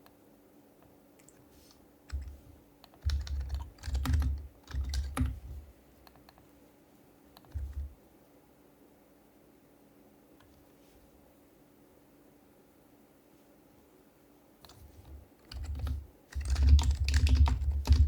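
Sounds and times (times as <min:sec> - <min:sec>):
keyboard keystrokes: 0:02.1 - 0:05.4, 0:07.4 - 0:07.9, 0:15.5 - 0:18.0.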